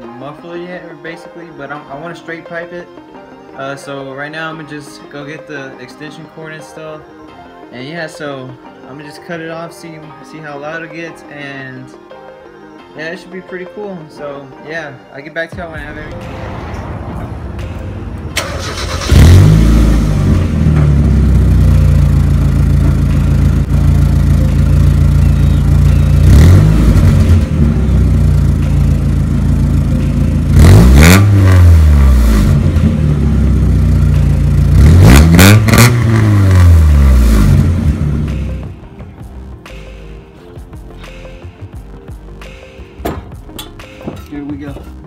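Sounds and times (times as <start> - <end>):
car engine starting and revving: 16.1 - 38.8.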